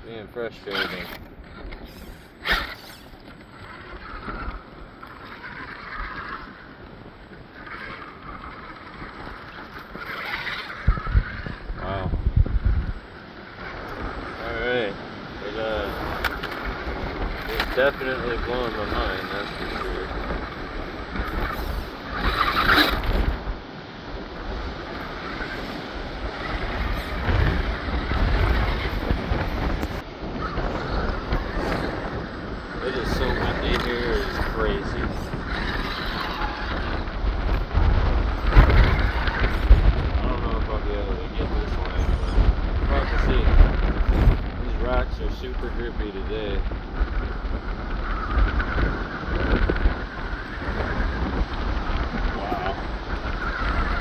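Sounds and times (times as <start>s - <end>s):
wind buffeting microphone: 0.0s - 54.0s
rc car electric motor whining: 0.4s - 40.1s, 40.8s - 43.5s, 45.3s - 54.0s.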